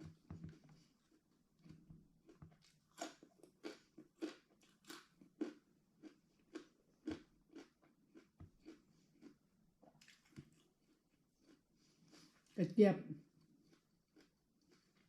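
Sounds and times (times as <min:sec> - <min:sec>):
person chewing crunchy food: 0:00.0 - 0:12.5, 0:13.4 - 0:15.0.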